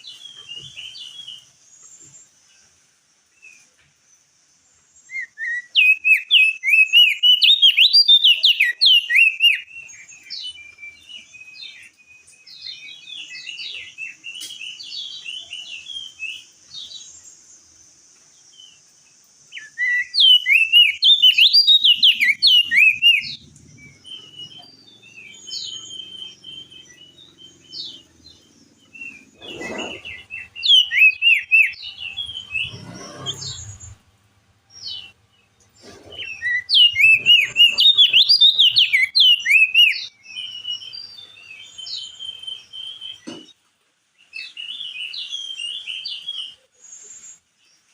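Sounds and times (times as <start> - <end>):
soft bird calls: 0.0 - 34.1, 34.8 - 43.6
bird warbling song: 0.0 - 47.9.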